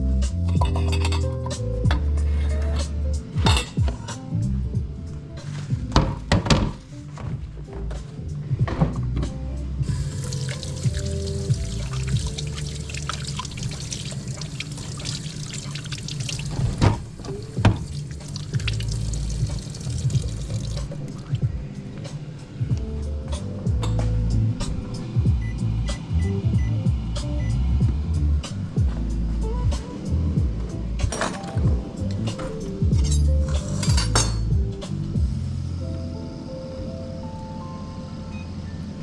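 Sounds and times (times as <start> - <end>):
background music: 0.0 - 39.0
dishes and utensils clinking: 0.6 - 1.3, 33.0 - 34.5
water running in sink: 9.9 - 21.4.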